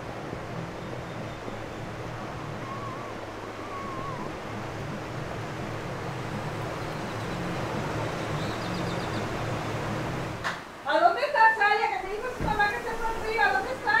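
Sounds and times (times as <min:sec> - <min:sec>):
river water rushing: 0:00.0 - 0:14.0
faint wavering whistles: 0:00.7 - 0:05.2.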